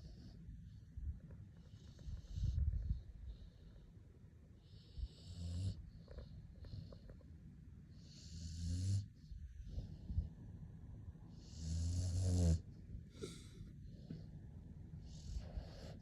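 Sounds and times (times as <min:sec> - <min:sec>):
puppy snoring: 0:00.0 - 0:03.7, 0:04.6 - 0:07.3, 0:07.9 - 0:10.4, 0:11.3 - 0:13.6, 0:15.0 - 0:16.0
puppy breathing quietly: 0:00.0 - 0:16.0.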